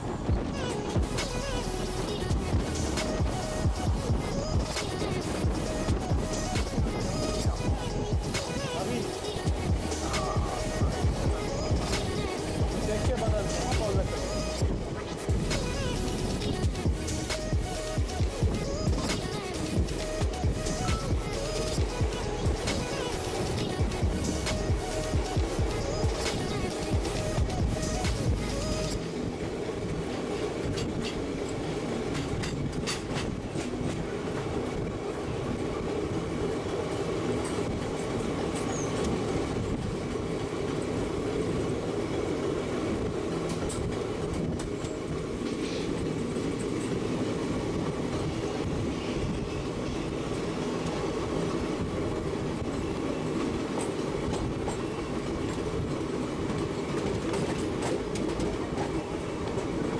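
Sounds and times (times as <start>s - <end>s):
train wheels rumbling on rails: 0.0s - 59.9s
clacks over rail joints: 29.9s - 34.9s, 43.0s - 59.9s.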